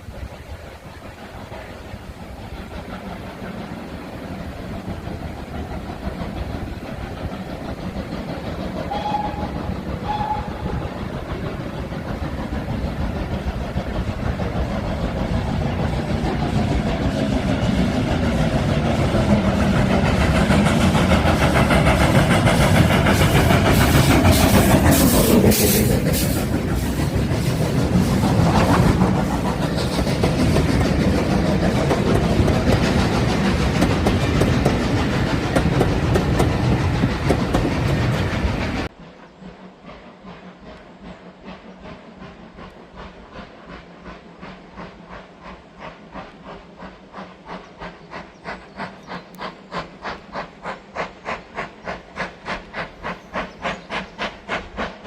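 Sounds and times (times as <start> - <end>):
train wheels clattering over rail joints: 1.3 - 38.9.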